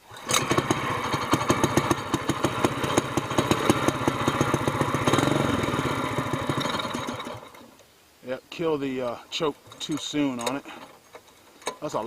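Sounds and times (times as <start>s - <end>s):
small engine running: 0.1s - 7.6s.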